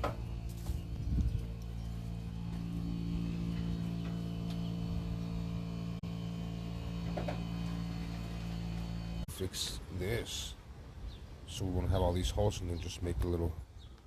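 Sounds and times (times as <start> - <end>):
machine motor humming: 0.0 - 9.3.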